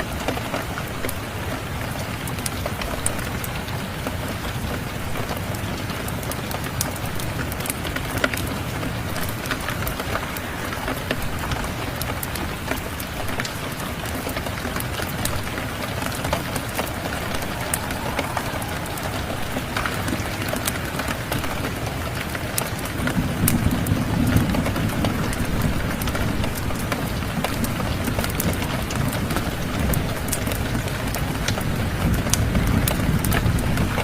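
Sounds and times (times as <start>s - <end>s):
steady rain hiss: 0.0s - 34.0s
wood fire crackling: 12.1s - 27.7s
low rumble: 15.5s - 22.3s.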